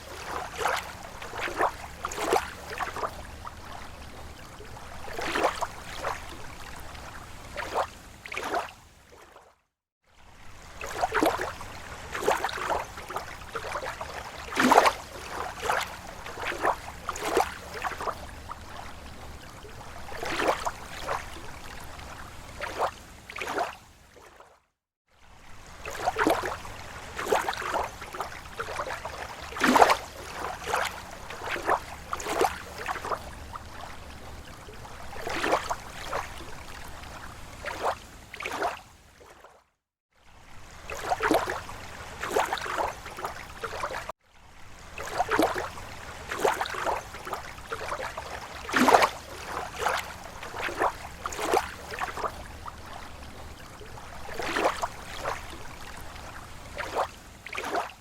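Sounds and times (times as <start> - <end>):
small waves lapping on shore: 0.0 - 58.0.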